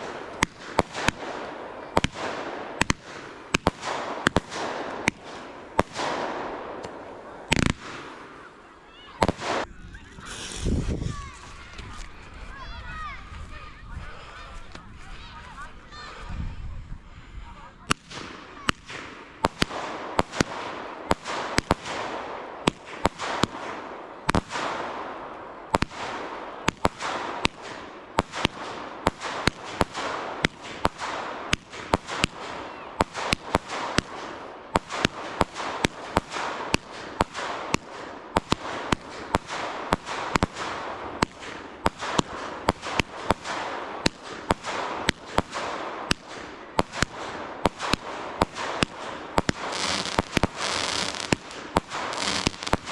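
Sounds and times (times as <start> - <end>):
fireworks bangs: 0.0 - 12.1, 17.9 - 52.9
continuous hiss: 29.6 - 52.9.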